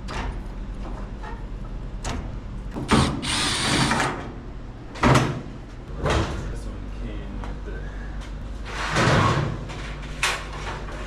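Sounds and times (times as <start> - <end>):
power drill running: 2.9 - 4.1.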